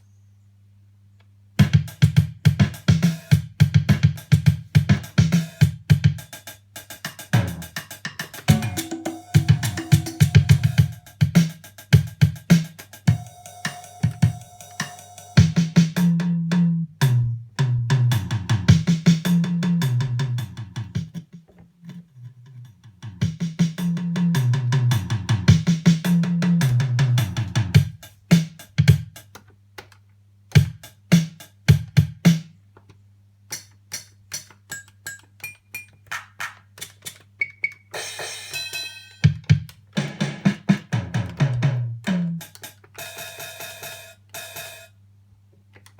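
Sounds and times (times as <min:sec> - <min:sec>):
drum machine beat: 0:01.6 - 0:21.2, 0:23.1 - 0:29.4, 0:30.5 - 0:32.5, 0:33.5 - 0:44.9
bass line: 0:07.4 - 0:07.8, 0:08.5 - 0:11.0, 0:15.4 - 0:21.2, 0:22.9 - 0:27.9.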